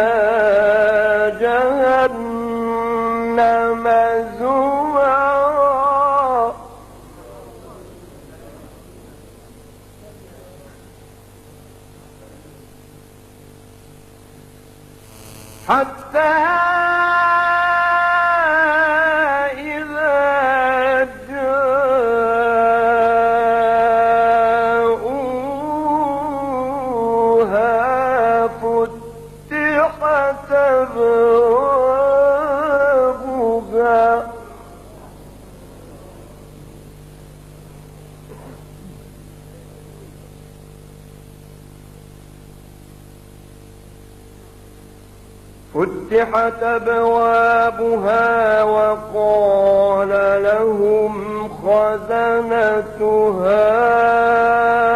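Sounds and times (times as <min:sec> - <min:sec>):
man chanting melodically: 0:00.0 - 0:08.7, 0:15.5 - 0:35.2, 0:45.7 - 0:54.9
electrical hum with hiss: 0:00.0 - 0:54.9.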